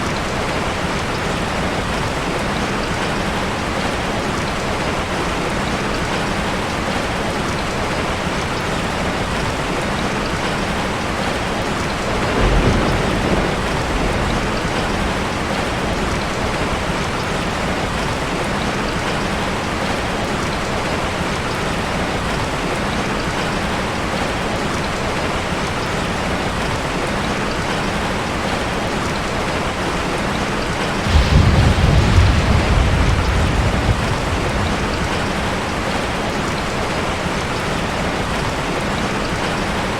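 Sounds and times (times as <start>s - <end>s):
steady rain: 0.0s - 39.9s
low thunder rumble: 11.9s - 18.0s, 31.0s - 36.4s.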